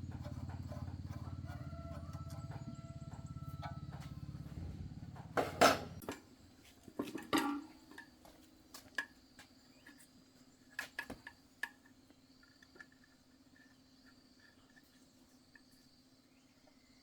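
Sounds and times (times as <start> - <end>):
pulsing machine hum: 0.0 - 6.0.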